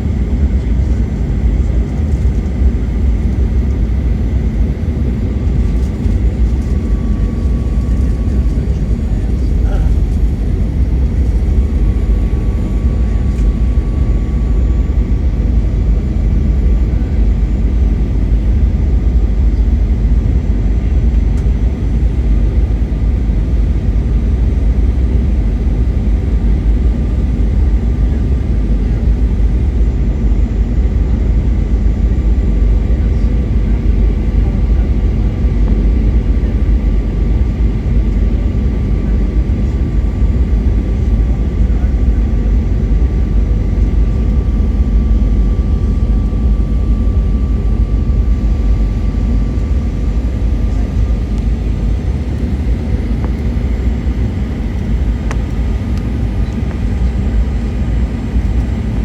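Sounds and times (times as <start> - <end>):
airplane cabin engine rumble: 0.0 - 59.0
faint whining tones: 5.3 - 17.6.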